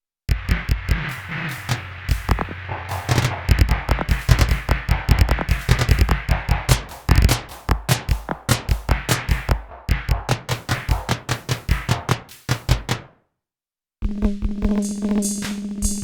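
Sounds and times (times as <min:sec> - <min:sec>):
clicky electronic drum hits: 0:00.3 - 0:13.1
deep kick drum thumps: 0:00.3 - 0:13.1.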